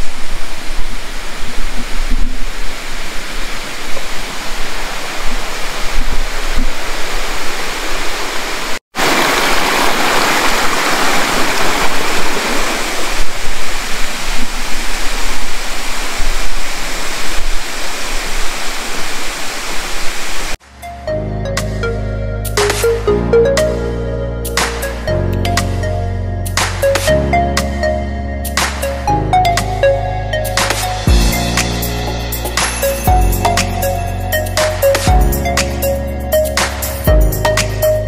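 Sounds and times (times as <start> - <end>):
waterfall rushing: 0.1 - 20.6
music: 20.6 - 38.0.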